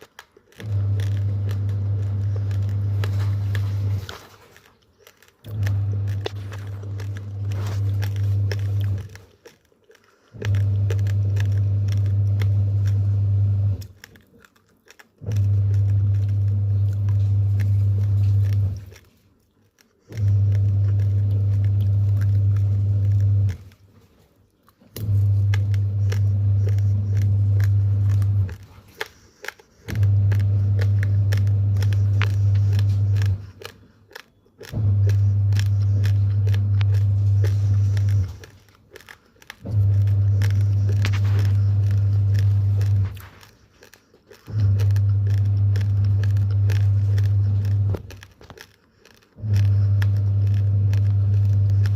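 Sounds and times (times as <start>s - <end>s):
raw rice being chewed: 0.0s - 51.9s
low hum cycling on and off: 0.6s - 4.2s, 5.4s - 9.2s, 10.4s - 14.0s, 15.2s - 19.0s, 20.1s - 23.8s, 25.0s - 28.7s, 29.8s - 33.5s, 34.7s - 38.6s, 39.5s - 43.5s, 44.3s - 48.2s, 49.4s - 51.9s.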